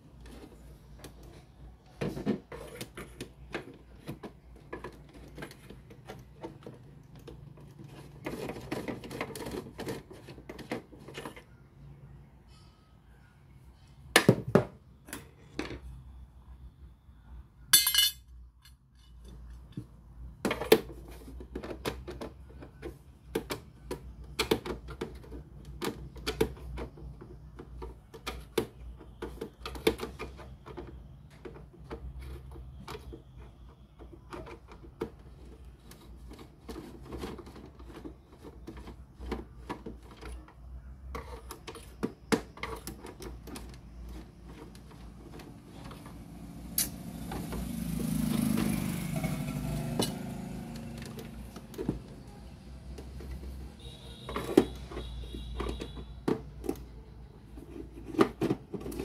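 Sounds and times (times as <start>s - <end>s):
small tools clicking and clinking: 17.8s - 19.9s, 46.8s - 47.0s.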